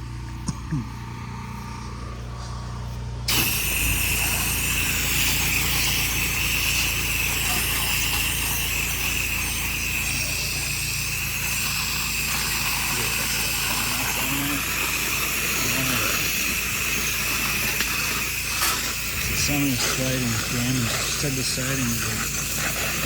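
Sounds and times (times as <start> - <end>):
pressure washer engine running: 0.0 - 23.0
high-pressure water spray hissing: 3.3 - 23.0.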